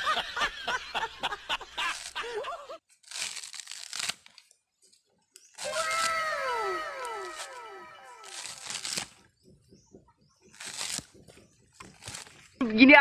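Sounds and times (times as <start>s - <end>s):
coconut husk fibres tearing: 1.8s - 2.3s, 2.9s - 4.6s, 5.4s - 9.3s, 10.5s - 12.6s
overlapping falling tones: 6.2s - 8.3s.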